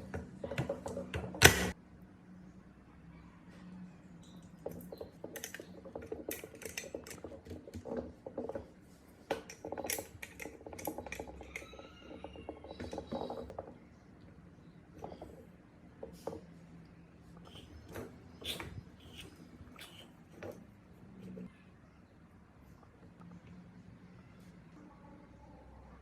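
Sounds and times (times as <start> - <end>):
metal parts and tools clicking: 4.7 - 8.6, 9.3 - 13.6
faint low hum: 10.9 - 26.0.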